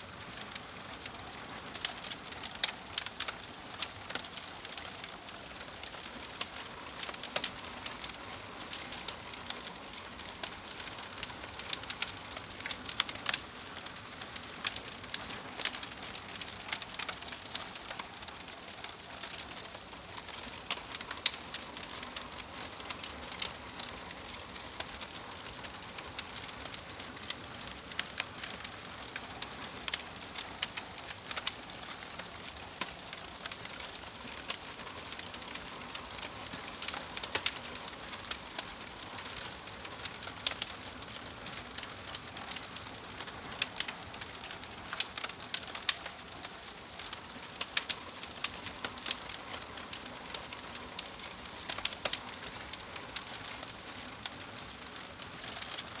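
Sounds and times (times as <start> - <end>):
fire crackling: 0.0 - 56.0.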